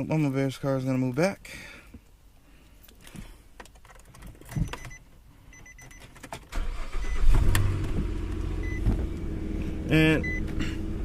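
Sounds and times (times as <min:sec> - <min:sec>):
car warning chime beeping: 0:04.6 - 0:07.4, 0:08.6 - 0:08.9, 0:10.0 - 0:10.5
car engine starting and idling: 0:06.2 - 0:11.0.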